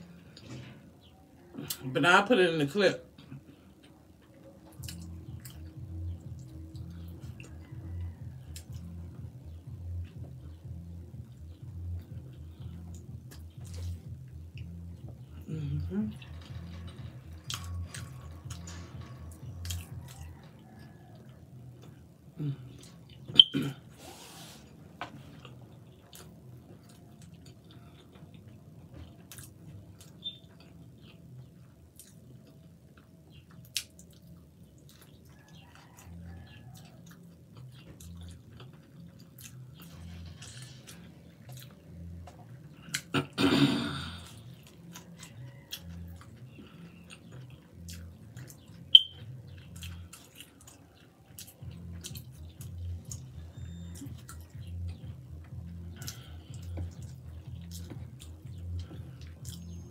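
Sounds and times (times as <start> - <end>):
close chewing: 3.4 - 15.4, 16.1 - 23.3, 25.1 - 43.4, 44.2 - 59.9.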